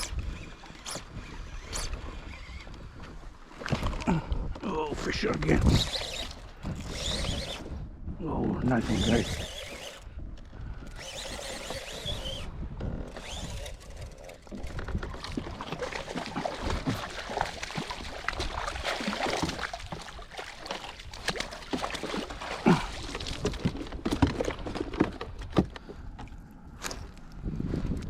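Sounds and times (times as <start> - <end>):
water splashing and sloshing: 13.1 - 27.2.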